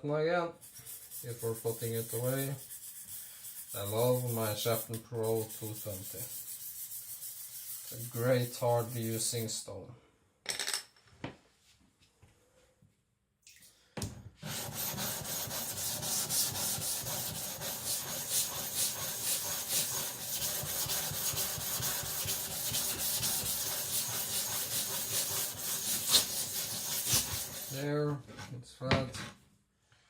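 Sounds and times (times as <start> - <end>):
whetstone rubbing gritty strokes: 0.6 - 9.4, 14.4 - 27.9.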